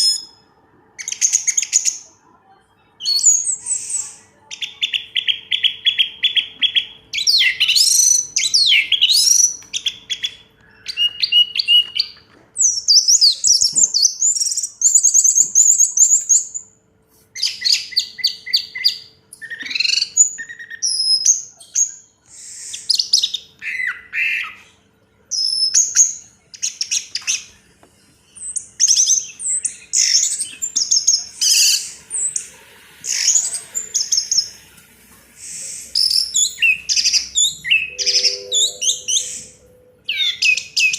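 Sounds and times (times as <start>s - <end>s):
thrush singing: 35.8s - 40.1s.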